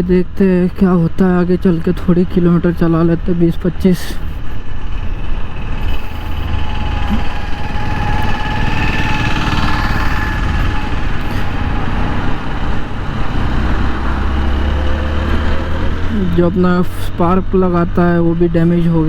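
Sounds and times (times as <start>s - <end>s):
low rumble: 0.0s - 17.8s
motorcycle engine running: 4.3s - 17.9s.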